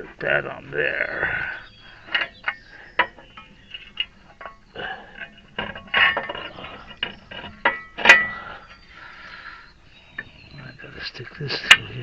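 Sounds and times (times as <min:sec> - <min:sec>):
metal parts clinking: 0:05.2 - 0:08.7.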